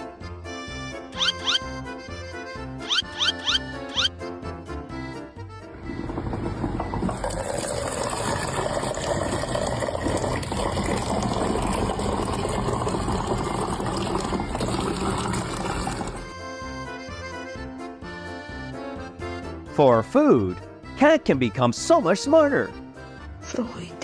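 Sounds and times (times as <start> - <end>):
background music: 0.0 - 24.0
running water: 5.8 - 16.3.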